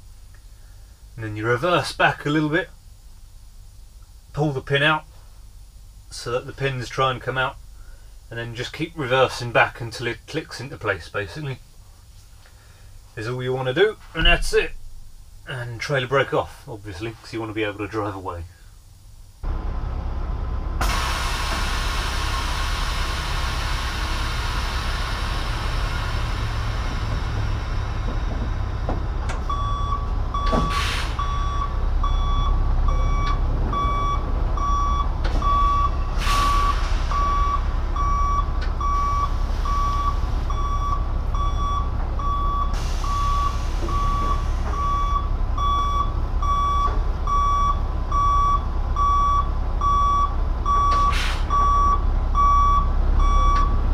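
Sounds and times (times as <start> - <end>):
truck diesel engine running: 19.4 - 53.9
reversing alarm beeping: 29.5 - 53.8.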